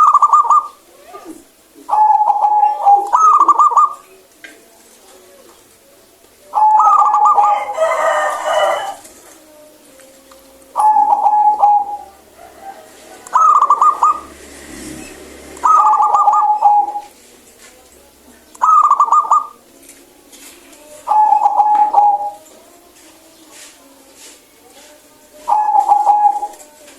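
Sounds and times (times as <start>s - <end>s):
dove trilling coo: 0.0s - 4.3s, 6.5s - 9.2s, 10.7s - 17.2s, 18.6s - 19.6s, 21.0s - 22.5s, 25.4s - 26.8s.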